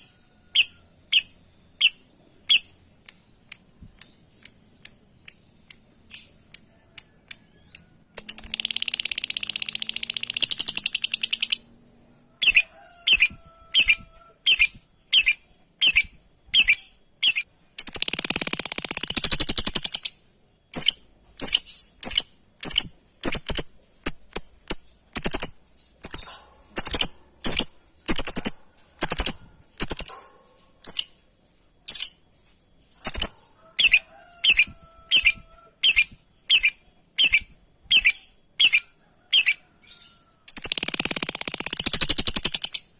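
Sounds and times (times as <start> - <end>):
lovebird chirping: 0.0 - 42.9
lovebird chattering: 0.6 - 11.7, 12.4 - 20.2, 20.8 - 31.2, 33.0 - 42.9.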